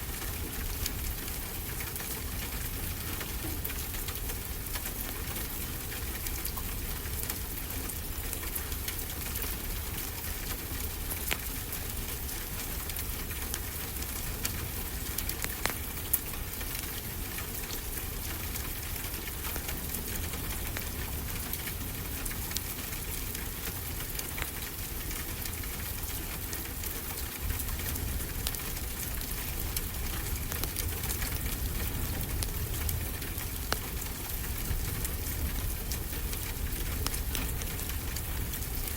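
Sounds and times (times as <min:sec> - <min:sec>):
fireplace crackling and popping: 0:10.5 - 0:38.9.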